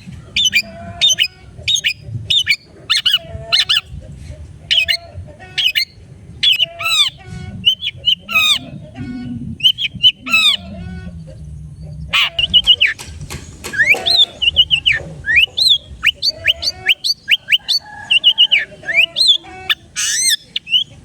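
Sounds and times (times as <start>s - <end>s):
downward sweeping bird calls: 0.0s - 3.9s, 4.7s - 21.0s
bird giving harsh squawking calls: 4.7s - 8.7s, 12.1s - 20.9s.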